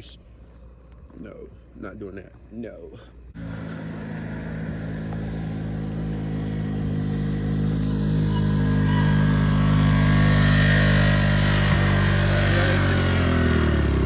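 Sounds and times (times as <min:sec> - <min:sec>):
dirt bike engine running: 0:03.4 - 0:14.0.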